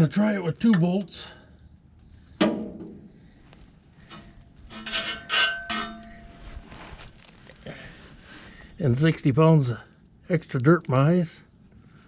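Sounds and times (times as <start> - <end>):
faint metal rubbing: 3.9 - 7.5
metal knocking and scraping: 4.0 - 6.6
metal clanks with ringing: 4.1 - 6.4.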